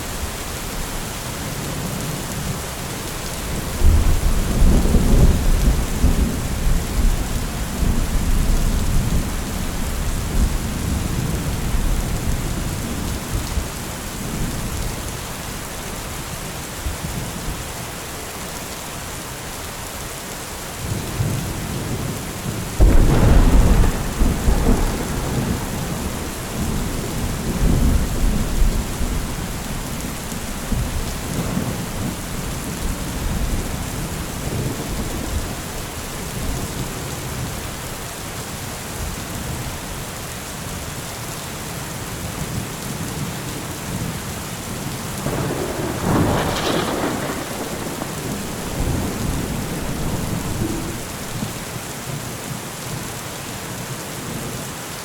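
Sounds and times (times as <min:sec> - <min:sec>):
steady rain: 0:00.0 - 0:55.0
thunder rumbling: 0:03.6 - 0:14.8, 0:22.8 - 0:37.6, 0:45.2 - 0:51.8
sharp thunderclap: 0:22.8 - 0:35.4, 0:45.2 - 0:51.7.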